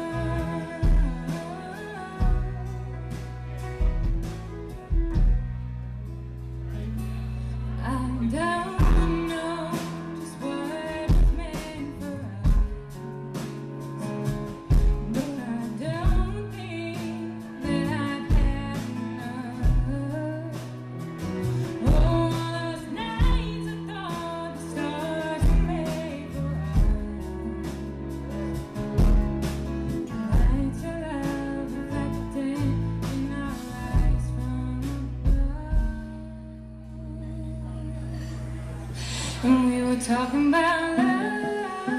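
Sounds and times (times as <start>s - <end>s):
person singing: 0.0s - 3.7s, 7.7s - 13.0s, 30.2s - 41.9s
steady drum beat: 0.0s - 6.2s, 8.8s - 34.5s
guitar: 0.0s - 41.9s
live band music: 0.0s - 41.9s.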